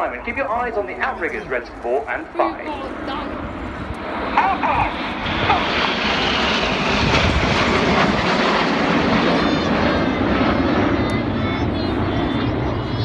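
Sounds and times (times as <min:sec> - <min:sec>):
jets flying past: 0:00.0 - 0:13.0.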